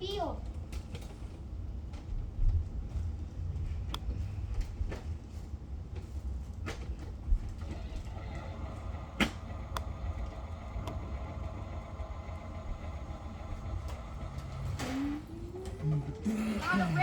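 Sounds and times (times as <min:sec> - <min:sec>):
toy vehicles rolling rumble: 0:07.5 - 0:17.0
sharp plastic clicks: 0:08.3 - 0:12.2.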